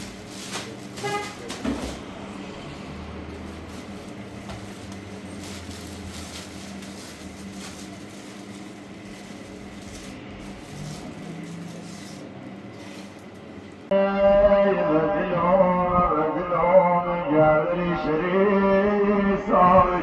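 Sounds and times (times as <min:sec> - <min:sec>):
road or wind noise: 0:00.0 - 0:12.4
low engine hum: 0:00.0 - 0:17.6.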